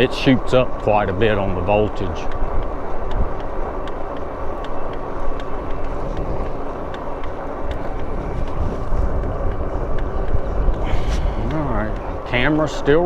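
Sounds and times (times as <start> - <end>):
bike tyre noise: 0.0 - 13.0
wind rumbling on microphone: 0.0 - 13.0.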